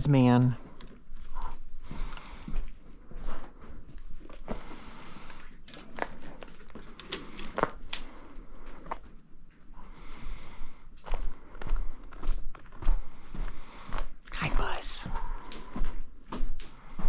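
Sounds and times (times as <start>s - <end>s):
footsteps: 0.0s - 17.0s.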